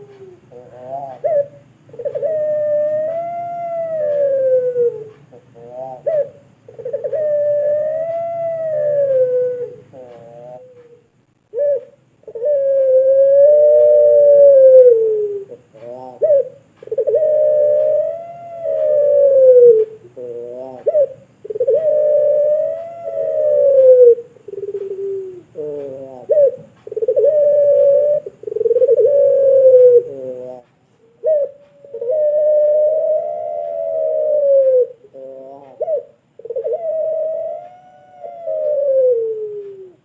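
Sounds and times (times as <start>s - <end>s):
dove cooing: 0.0s - 40.0s.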